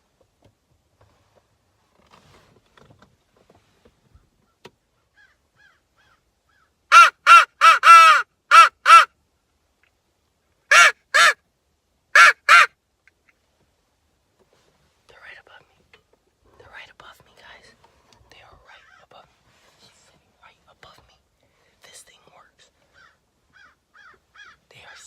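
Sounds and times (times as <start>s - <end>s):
crow call caws: 5.2s - 9.1s, 10.7s - 11.4s, 22.9s - 24.6s.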